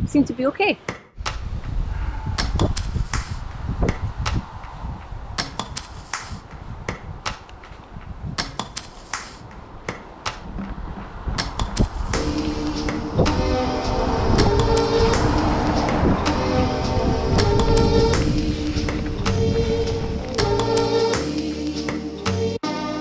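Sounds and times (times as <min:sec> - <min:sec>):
sharp clicks and knocks: 0:02.4 - 0:16.1, 0:16.8 - 0:19.6
low rumble: 0:09.7 - 0:20.5.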